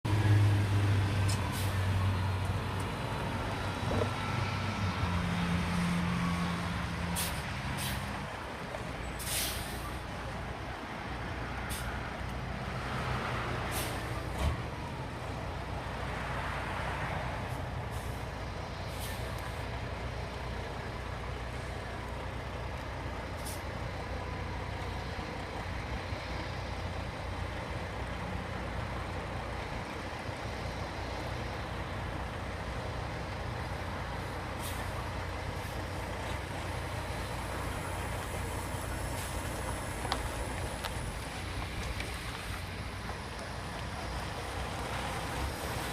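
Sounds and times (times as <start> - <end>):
diesel truck engine pulling away: 0.1 - 45.9
air brake hisses: 9.2 - 10.0, 13.7 - 14.1.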